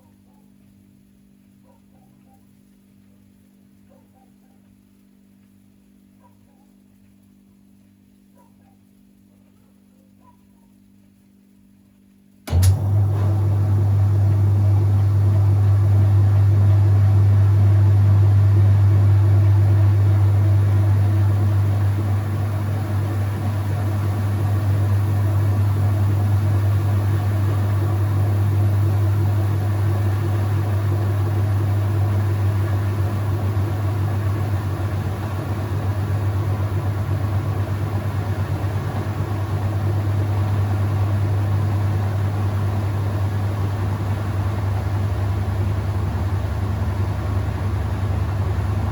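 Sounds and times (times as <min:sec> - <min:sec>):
washing machine motor hum: 0:12.4 - 0:48.9.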